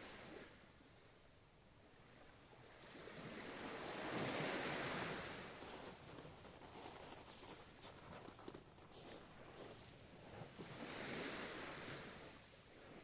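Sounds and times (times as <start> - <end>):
ocean wave breaking: 10.6 - 12.3.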